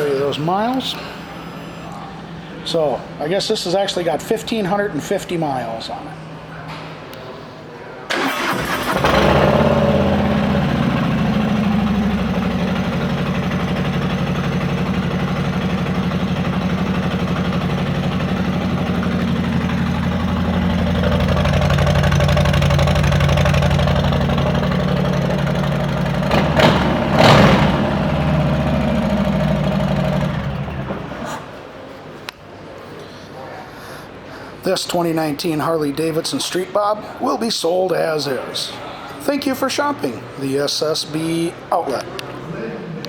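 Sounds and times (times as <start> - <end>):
motorcycle engine idling loudly: 9.0 - 31.0.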